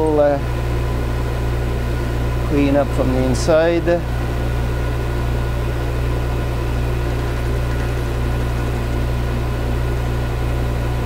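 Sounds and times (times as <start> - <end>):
lathe motor humming: 0.0 - 11.0.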